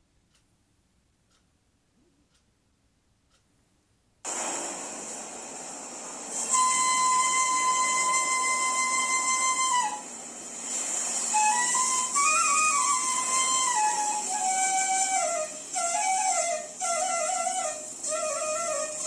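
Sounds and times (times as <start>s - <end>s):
breathy flute melody: 6.3s - 19.0s.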